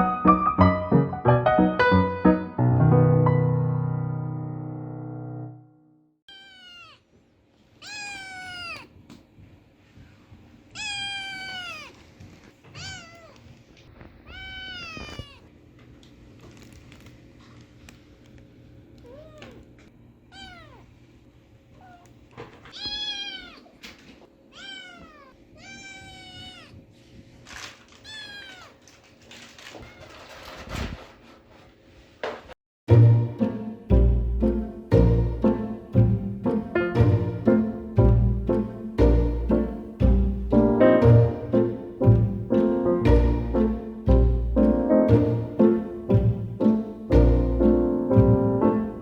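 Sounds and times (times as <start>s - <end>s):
kitten meowing: 6.3s - 7.0s, 7.8s - 8.9s, 10.8s - 12.0s, 12.7s - 13.5s, 14.2s - 15.5s, 19.0s - 19.6s, 20.3s - 20.9s, 21.8s - 23.7s, 24.5s - 26.8s, 28.0s - 28.8s.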